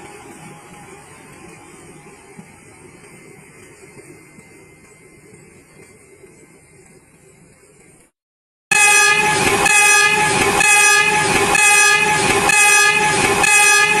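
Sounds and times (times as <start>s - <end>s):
train horn: 8.7s - 14.0s.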